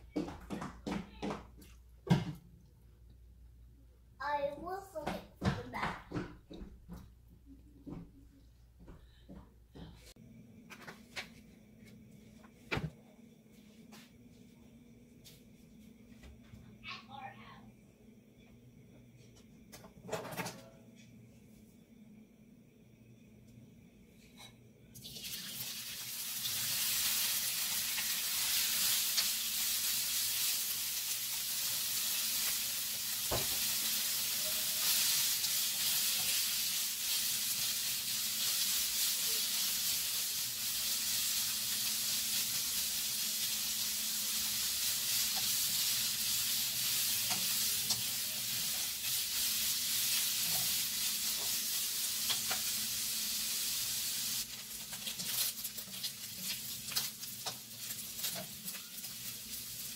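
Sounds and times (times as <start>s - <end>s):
meat sizzling in oil: 25.0s - 59.9s.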